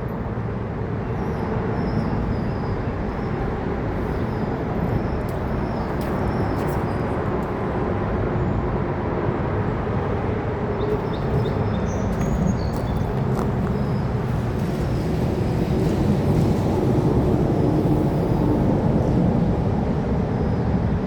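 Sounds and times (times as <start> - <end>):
freight train wheels rumbling: 9.1 - 20.2.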